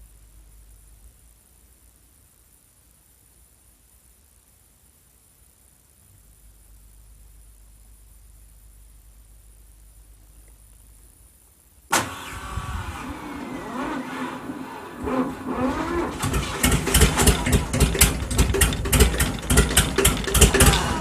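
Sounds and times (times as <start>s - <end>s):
engine cranking with whine: 11.9s - 21.0s
tractor engine running: 11.9s - 21.0s.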